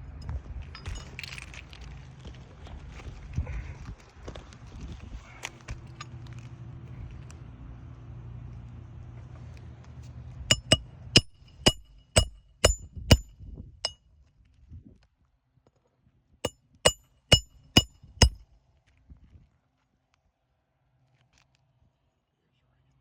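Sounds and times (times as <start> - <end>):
hammer striking roofing nails: 10.5 - 13.3, 16.9 - 18.4.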